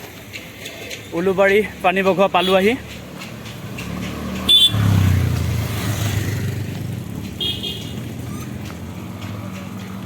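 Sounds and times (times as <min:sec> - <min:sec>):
vehicle passing by: 0:02.8 - 0:10.0.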